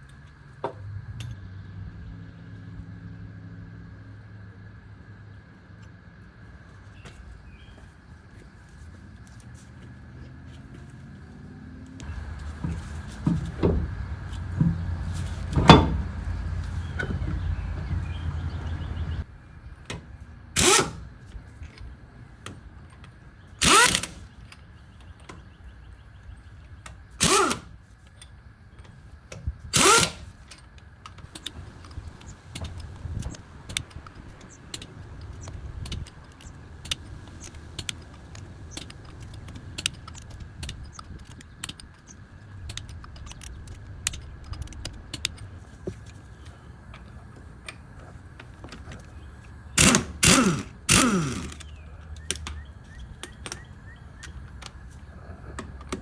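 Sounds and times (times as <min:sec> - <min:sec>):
hand tool clicks: 0:20.6 - 0:21.1, 0:23.6 - 0:24.3, 0:27.2 - 0:27.8, 0:29.8 - 0:45.5, 0:49.8 - 0:52.6
power tool bursts: 0:20.6 - 0:21.1, 0:23.6 - 0:24.3, 0:27.2 - 0:27.8, 0:29.8 - 0:30.5, 0:49.8 - 0:51.8.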